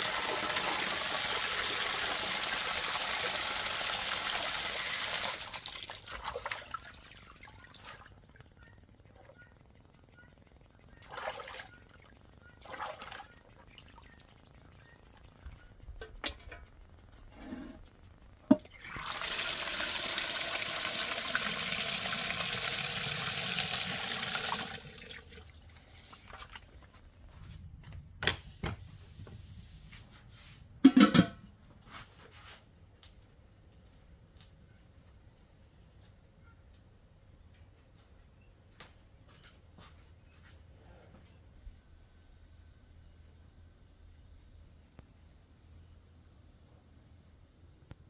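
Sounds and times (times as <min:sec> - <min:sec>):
water running into a container: 0:00.0 - 0:08.2, 0:11.0 - 0:14.5, 0:18.5 - 0:26.8.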